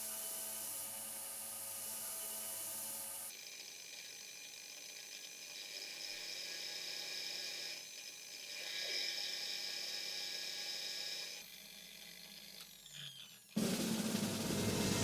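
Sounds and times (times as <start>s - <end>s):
small motor whirring: 1.8s - 13.6s.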